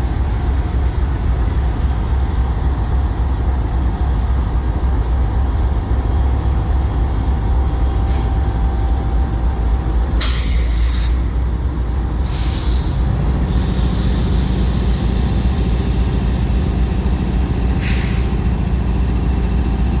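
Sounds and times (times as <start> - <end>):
locomotive engines idling: 0.0 - 20.0
compressed air hissing: 10.2 - 11.4, 12.2 - 16.6, 17.7 - 18.5.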